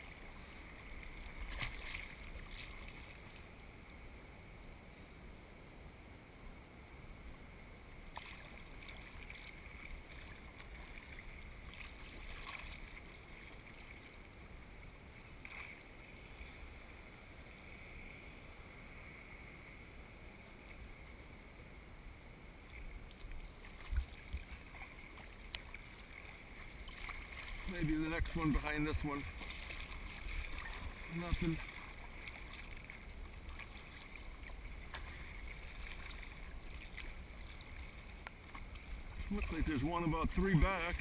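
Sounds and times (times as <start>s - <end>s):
water splashes: 0.0s - 3.7s, 8.0s - 17.0s, 22.6s - 41.0s
water lapping around a kayak: 0.0s - 41.0s.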